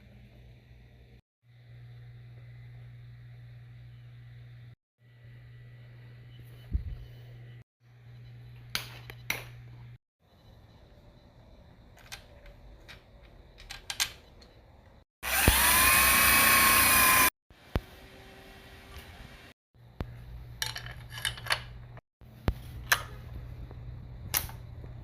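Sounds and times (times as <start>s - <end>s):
power tool spinning up: 15.2s - 17.3s.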